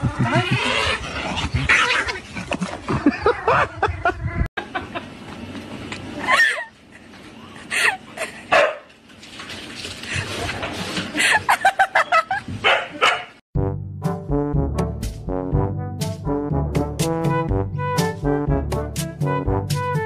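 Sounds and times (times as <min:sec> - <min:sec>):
dog barking: 0:08.5 - 0:08.9, 0:12.6 - 0:13.4
brass tune: 0:13.6 - 0:20.0.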